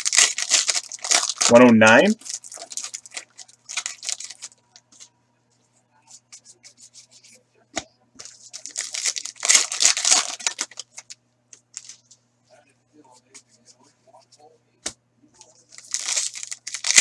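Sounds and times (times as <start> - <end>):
card wrappers tearing and crinkling: 0.0 - 4.6, 8.2 - 11.2, 11.8 - 12.0, 15.6 - 17.0
cards crackling: 0.0 - 5.1, 8.2 - 12.0, 15.5 - 17.0.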